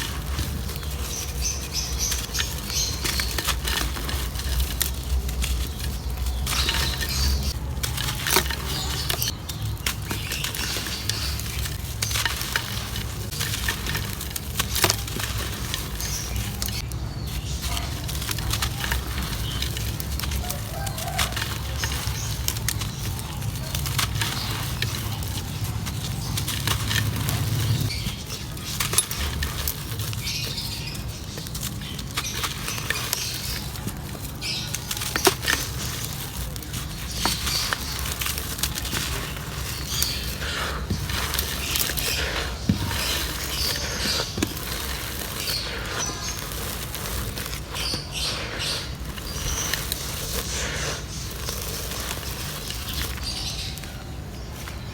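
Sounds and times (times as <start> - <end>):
dry clay crumbling and crackling: 0.0 - 54.9.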